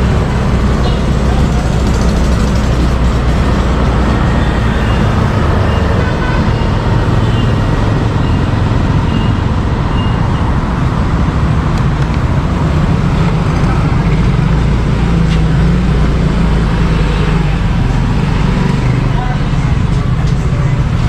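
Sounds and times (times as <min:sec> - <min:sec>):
motorbike engine running: 0:00.0 - 0:05.0
road noise: 0:00.0 - 0:21.0.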